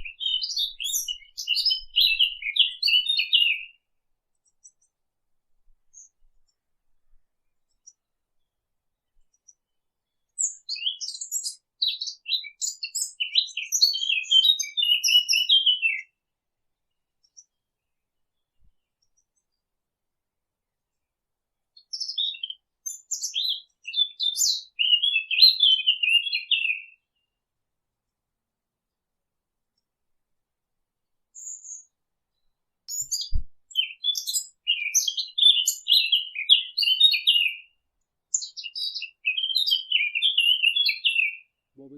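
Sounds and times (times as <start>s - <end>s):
warbler singing: 0.0s - 3.8s, 9.3s - 16.2s, 21.8s - 27.3s, 31.3s - 41.9s.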